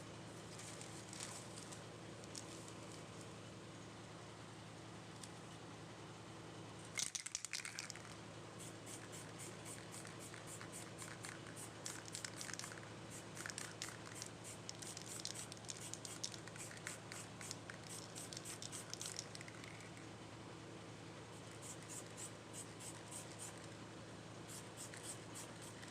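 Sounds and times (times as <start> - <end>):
crinkling: 0.5 - 3.1.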